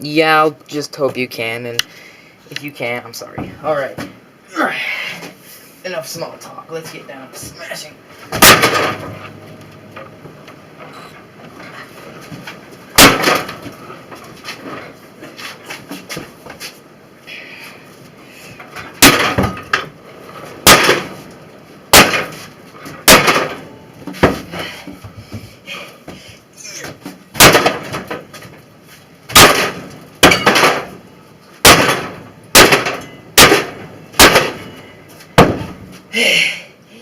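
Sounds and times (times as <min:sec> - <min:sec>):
sledgehammer smashing microwave: 0:08.3 - 0:09.3, 0:12.9 - 0:13.6, 0:18.9 - 0:19.8, 0:20.6 - 0:21.2, 0:21.9 - 0:22.4, 0:23.0 - 0:23.6, 0:27.3 - 0:28.2, 0:29.3 - 0:31.0, 0:31.6 - 0:34.7, 0:35.4 - 0:35.8.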